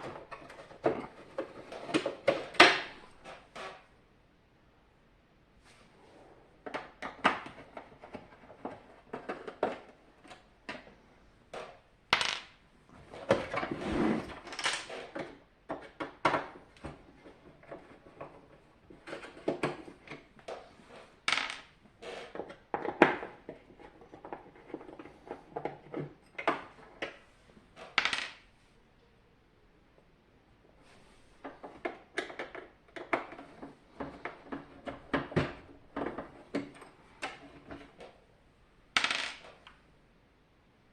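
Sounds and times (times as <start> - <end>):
small parts and tools clattering: 6.6 - 27.2.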